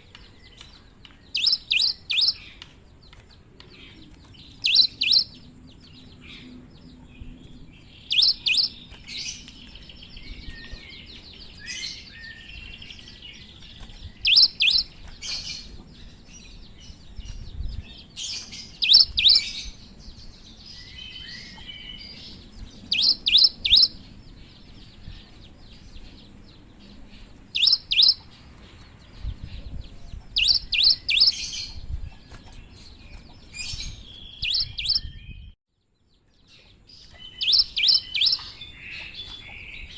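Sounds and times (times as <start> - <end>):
bird twittering: 0.5 - 2.6, 3.8 - 5.5, 7.9 - 13.5, 14.1 - 15.6, 18.4 - 19.7, 20.8 - 24.0, 27.5 - 28.3, 30.3 - 31.8, 33.5 - 35.5, 37.0 - 39.9.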